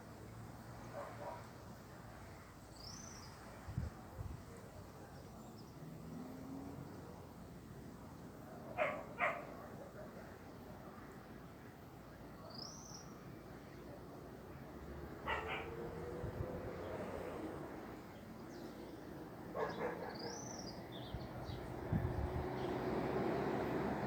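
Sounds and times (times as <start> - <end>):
faint outdoor hiss: 0.0 - 24.0
dog barking: 0.9 - 1.5, 8.8 - 9.6, 15.2 - 15.9, 19.5 - 20.6.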